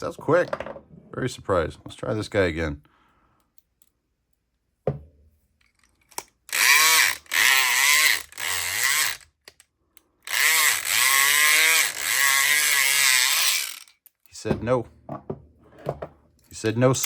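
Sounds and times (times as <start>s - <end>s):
knock: 4.9s - 5.1s
electric pick gun buzzing: 6.5s - 9.4s, 10.3s - 14.0s.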